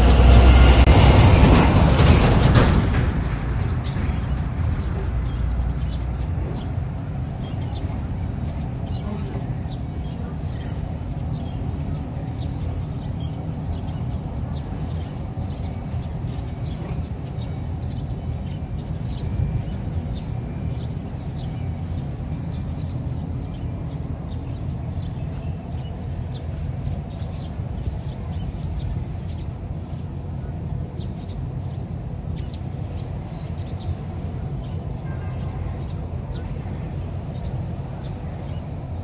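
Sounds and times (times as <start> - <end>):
vehicle engine rumbling: 0.0 - 39.0.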